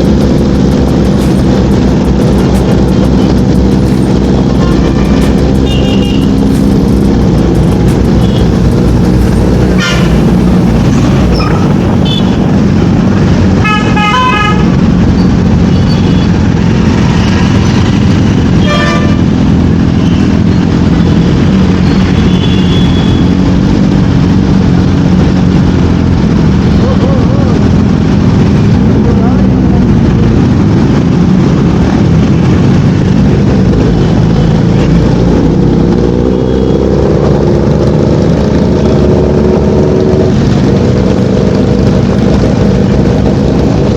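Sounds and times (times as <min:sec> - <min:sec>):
motorcycle engine running: 0:00.0 - 0:43.9
vehicle horns tooting: 0:04.6 - 0:06.5, 0:09.8 - 0:10.3, 0:13.6 - 0:14.8, 0:15.7 - 0:16.4, 0:18.5 - 0:19.4, 0:21.8 - 0:23.4.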